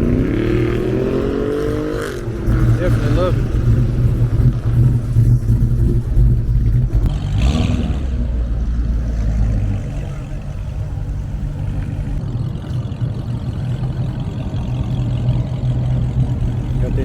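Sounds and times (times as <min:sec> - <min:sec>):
car engine rumbling: 0:00.0 - 0:12.2, 0:14.4 - 0:17.0
engine rasp: 0:00.0 - 0:12.2.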